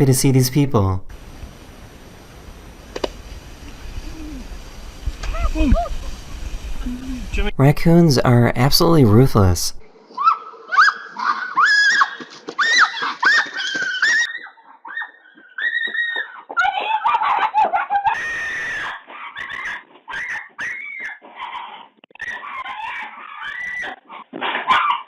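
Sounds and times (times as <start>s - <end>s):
raccoons screeching: 10.2s - 25.0s.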